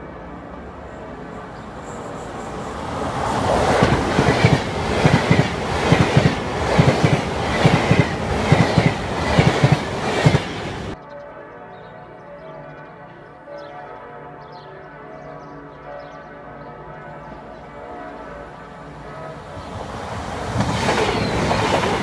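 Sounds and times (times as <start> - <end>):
passenger train passing: 0.0 - 11.0, 17.2 - 22.0
wheels clacking over rail joints: 2.7 - 11.0, 19.5 - 22.0.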